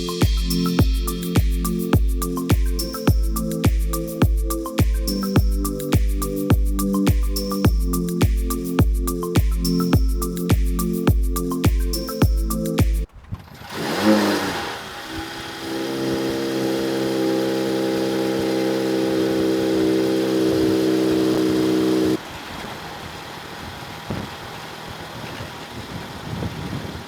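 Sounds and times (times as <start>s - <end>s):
car engine starting and idling: 13.4s - 26.3s.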